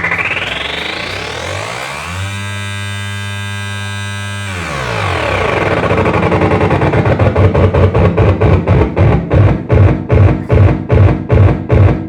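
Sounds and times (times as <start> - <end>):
distorted electronic noise music: 0.0 - 12.0
low pulsing beat: 4.2 - 12.0.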